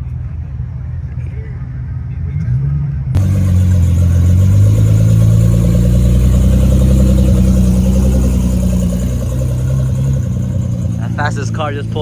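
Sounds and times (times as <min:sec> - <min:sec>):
car engine running: 0:03.2 - 0:12.0.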